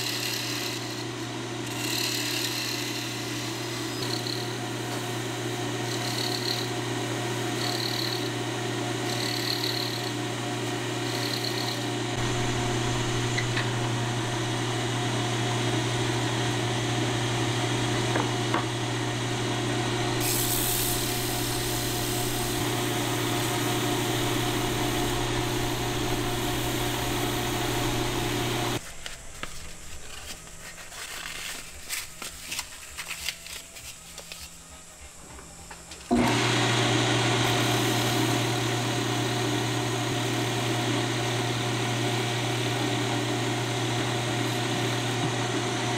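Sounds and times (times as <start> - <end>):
power tool motor running: 0.0 - 28.8, 36.1 - 45.9
handling and rubbing noises: 28.0 - 36.0.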